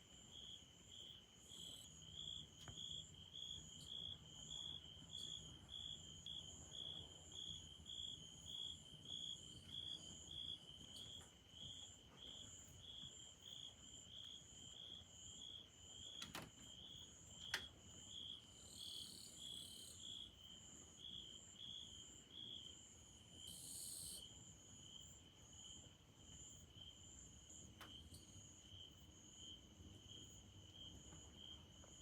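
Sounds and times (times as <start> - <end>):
insect pulsing trill: 23.4 - 24.3.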